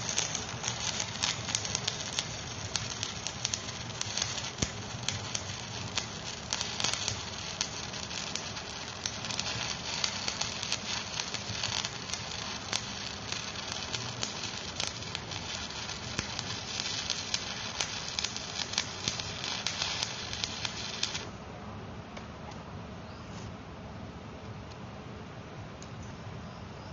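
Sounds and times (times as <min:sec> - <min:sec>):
welding arc crackling and sizzling: 0:00.0 - 0:21.4.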